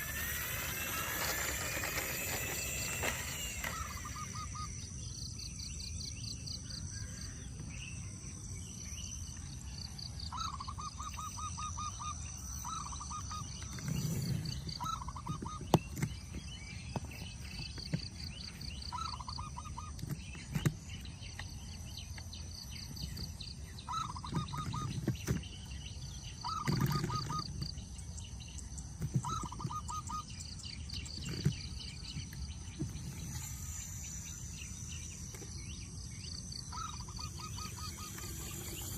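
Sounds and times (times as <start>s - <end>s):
bird trills: 0.0s - 7.4s, 10.1s - 38.9s.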